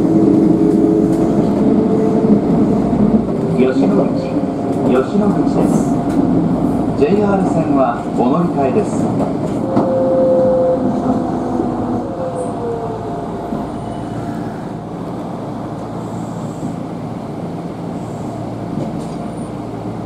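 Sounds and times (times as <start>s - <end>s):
train cabin rumble and hum: 0.0s - 20.0s
train drive whine: 0.0s - 20.0s.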